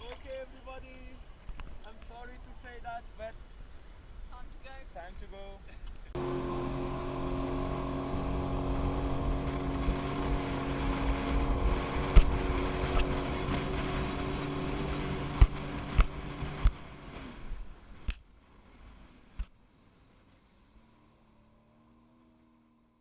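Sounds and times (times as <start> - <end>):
wind on microphone: 6.2 - 17.7
jet ski engine running: 6.2 - 22.8
sharp thumps: 15.2 - 16.8.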